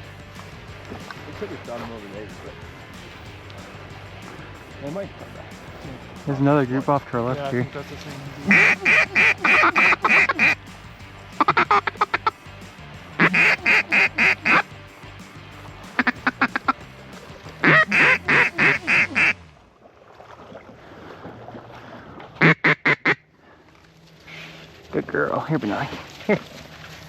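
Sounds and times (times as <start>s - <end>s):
duck call quacks: 8.4s - 10.6s, 11.4s - 12.3s, 13.2s - 14.7s, 16.0s - 16.8s, 17.6s - 19.4s, 22.4s - 23.2s.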